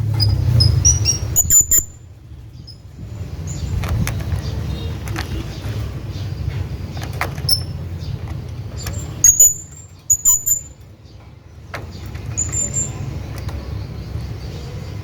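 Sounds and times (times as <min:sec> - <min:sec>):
parrot squeaky chirps: 0:00.2 - 0:02.0, 0:09.2 - 0:10.8.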